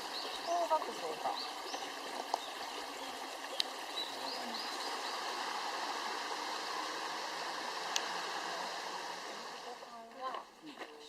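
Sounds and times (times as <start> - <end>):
bird chirping: 0.0 - 5.3
stream running: 0.0 - 11.0.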